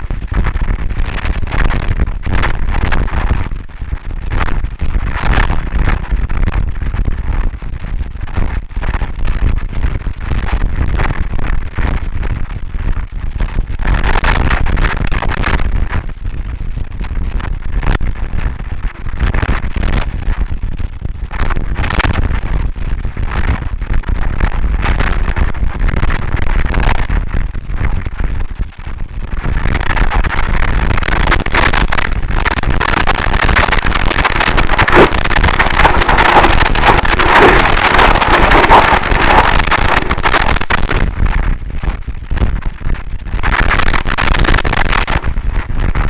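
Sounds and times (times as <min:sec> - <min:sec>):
harsh distorted noise music: 0:30.8 - 0:41.2, 0:43.4 - 0:45.3.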